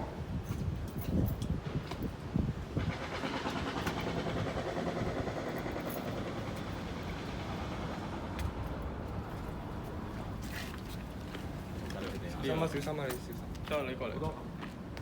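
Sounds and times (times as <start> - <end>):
vehicle running noise: 2.7 - 11.8.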